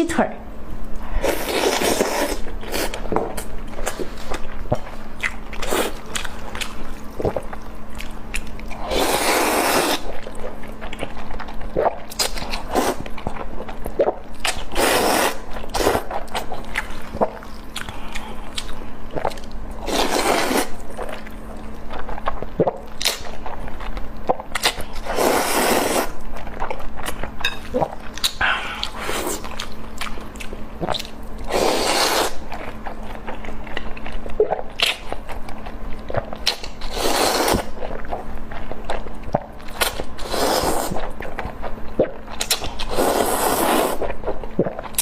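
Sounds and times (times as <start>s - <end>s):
wet mouth clicks and chewing: 2.8s - 8.8s, 10.1s - 14.7s, 26.4s - 31.2s, 32.4s - 36.8s, 40.8s - 43.1s, 44.0s - 45.0s.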